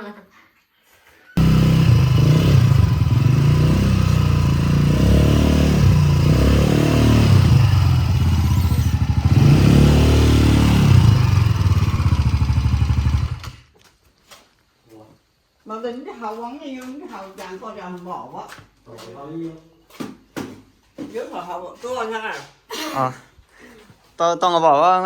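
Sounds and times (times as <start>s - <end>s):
engine revving: 1.4s - 13.6s.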